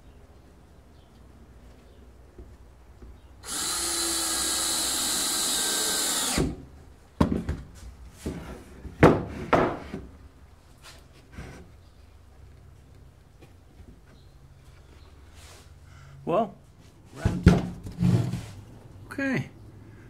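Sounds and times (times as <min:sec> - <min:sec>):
power drill running: 0:03.4 - 0:06.6
sharp knocks of wood and tools: 0:07.2 - 0:10.1.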